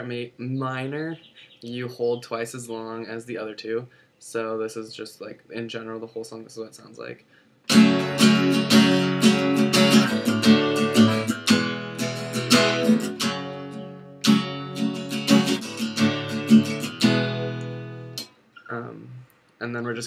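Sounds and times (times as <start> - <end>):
acoustic guitar strumming: 7.7 - 18.7.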